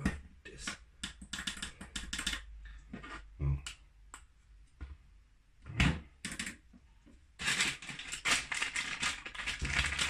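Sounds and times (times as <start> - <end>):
wrapping material crackling: 7.4 - 10.0.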